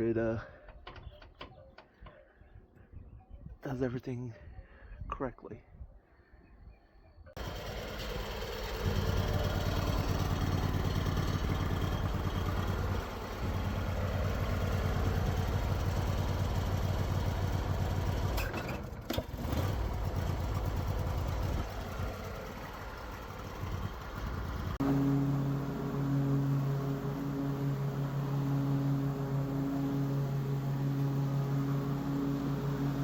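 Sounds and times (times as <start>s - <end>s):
lawn mower engine running: 7.4s - 33.0s.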